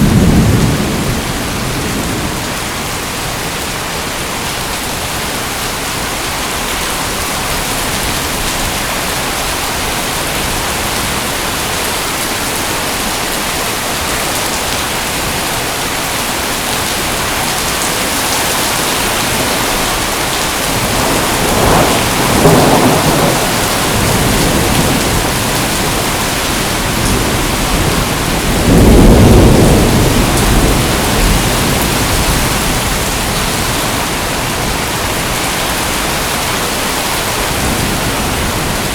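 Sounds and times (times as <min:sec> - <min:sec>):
thunder rolling: 0:00.0 - 0:03.1, 0:19.0 - 0:35.3
heavy rain: 0:00.0 - 0:38.9.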